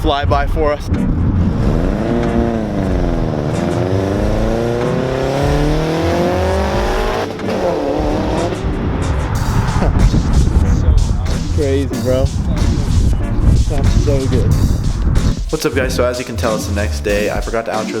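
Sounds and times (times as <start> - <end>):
turbocharged car accelerating past: 1.3 - 10.8.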